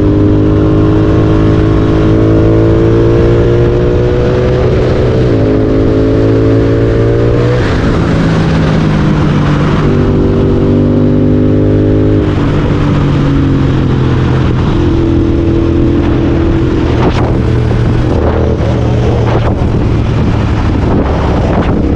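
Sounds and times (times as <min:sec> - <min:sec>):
motorcycle engine accelerating: 0:00.0 - 0:21.9.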